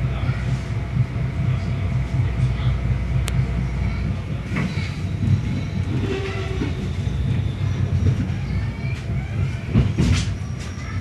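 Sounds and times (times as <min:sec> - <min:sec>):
train wheels rumbling on rails: 0:00.0 - 0:11.0
faint wheel squeals: 0:04.6 - 0:11.0.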